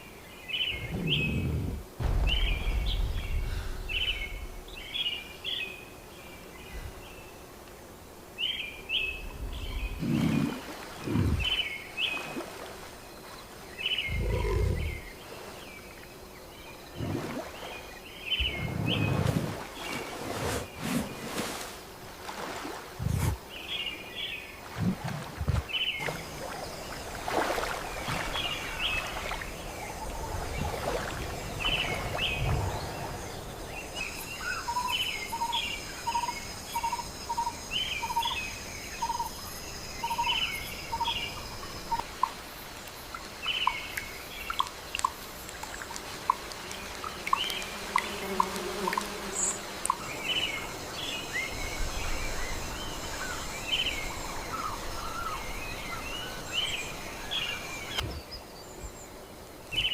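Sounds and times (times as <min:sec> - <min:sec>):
bird chirping: 0:00.4 - 0:07.2, 0:13.8 - 0:15.2
deep low rumbles: 0:00.8 - 0:05.2, 0:14.1 - 0:15.1.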